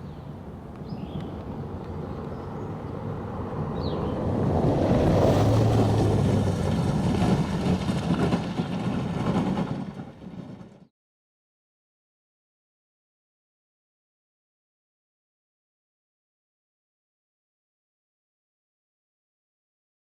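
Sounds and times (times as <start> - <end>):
motor vehicle noise: 0.0 - 10.9.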